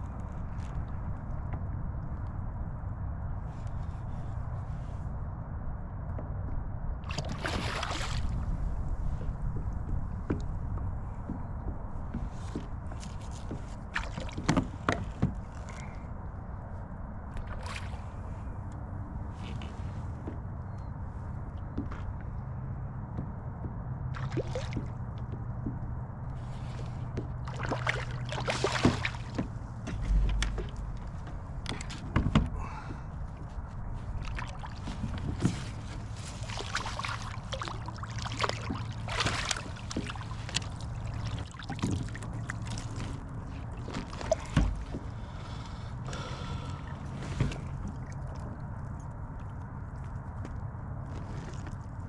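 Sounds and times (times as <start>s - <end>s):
steady low rumble: 0.0s - 14.8s, 15.4s - 52.0s
water splashing around kayak: 7.0s - 11.3s, 12.2s - 16.0s, 17.3s - 18.6s, 24.1s - 25.6s, 26.4s - 49.5s
knocks against hull: 28.5s - 33.0s, 44.2s - 45.1s.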